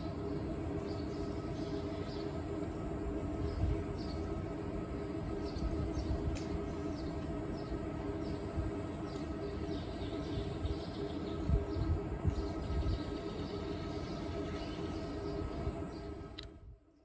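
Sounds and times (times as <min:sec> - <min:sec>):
small birds chirping: 0:00.0 - 0:17.0
steady mechanical hum: 0:00.0 - 0:17.0.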